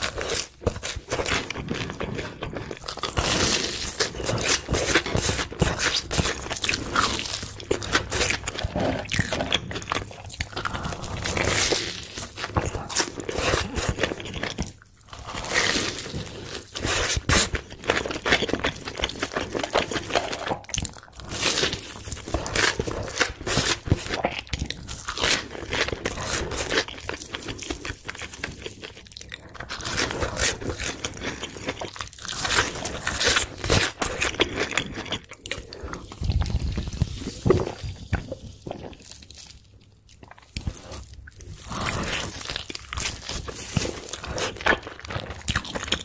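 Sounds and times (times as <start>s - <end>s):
crunchy chewing: 0.0s - 46.0s.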